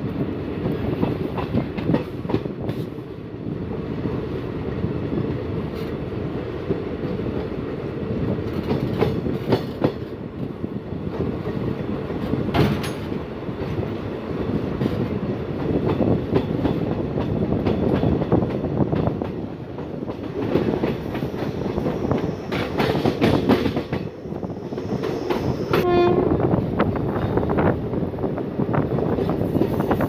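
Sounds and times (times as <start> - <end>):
train wheels rumbling on rails: 0.0 - 30.0
clacks over rail joints: 0.6 - 3.0, 8.4 - 13.8, 14.8 - 24.1
train horn blast: 25.7 - 26.5.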